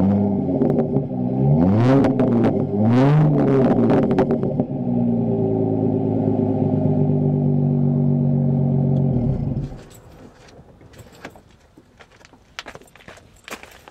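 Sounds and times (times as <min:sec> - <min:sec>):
car exhaust idling: 0:00.3 - 0:10.0.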